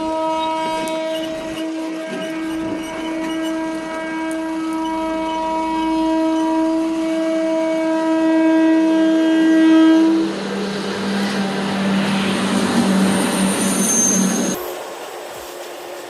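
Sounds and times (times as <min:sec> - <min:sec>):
train horn: 0:00.0 - 0:16.0
train passing on track: 0:00.0 - 0:16.0.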